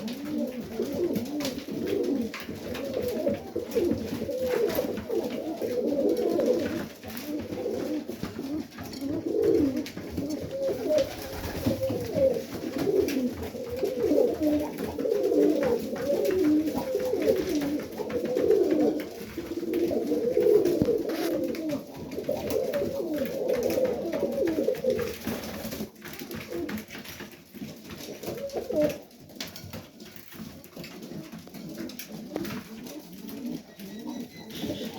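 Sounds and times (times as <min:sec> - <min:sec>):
pigeons cooing: 0:00.0 - 0:26.9, 0:27.9 - 0:29.2, 0:30.1 - 0:34.9.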